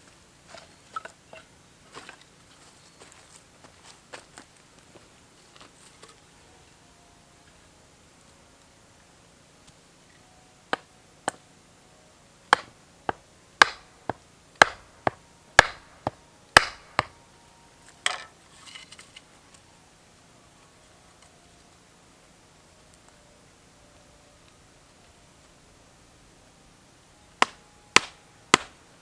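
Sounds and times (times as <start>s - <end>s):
axe chopping wood: 12.5s - 17.2s, 27.4s - 28.8s.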